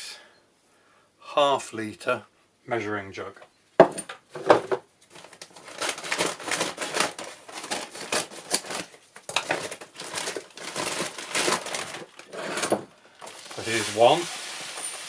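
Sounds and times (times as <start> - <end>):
plastic bag crinkling: 5.1 - 15.0.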